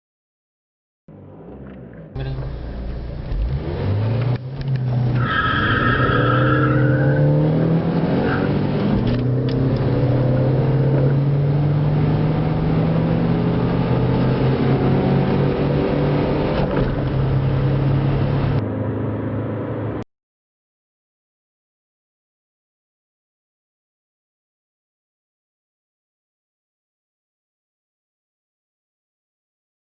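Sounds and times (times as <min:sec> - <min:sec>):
car engine accelerating: 0:01.1 - 0:20.0.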